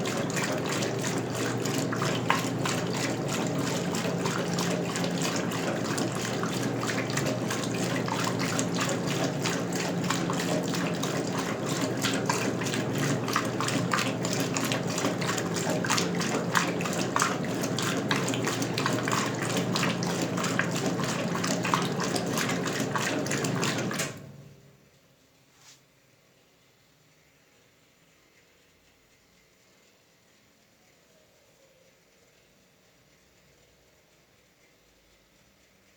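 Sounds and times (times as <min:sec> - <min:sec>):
water splashing in washing machine: 0:00.0 - 0:24.7
washing machine low hum: 0:00.0 - 0:25.3.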